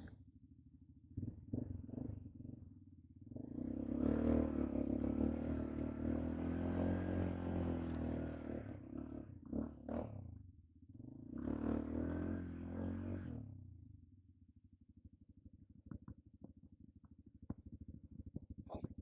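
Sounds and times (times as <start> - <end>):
quad bike engine revving: 3.4 - 10.2, 11.0 - 13.5.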